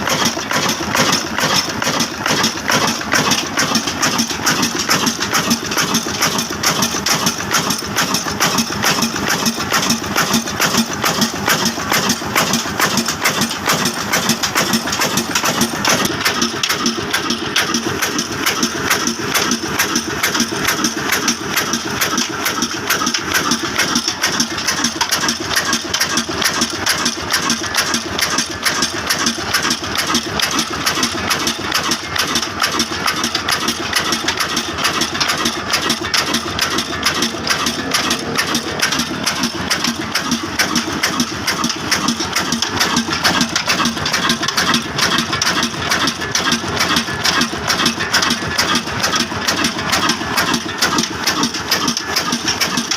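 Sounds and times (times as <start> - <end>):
diesel engine clattering: 0.0 - 52.9.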